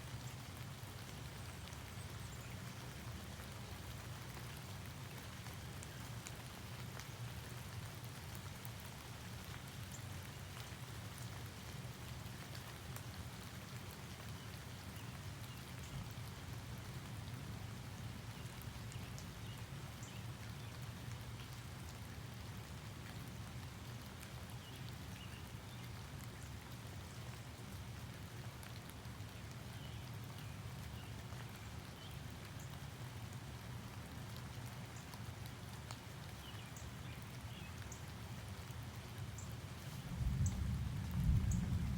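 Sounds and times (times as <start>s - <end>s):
steady rainfall: 0.0s - 41.9s
low steady rumble: 40.0s - 41.9s.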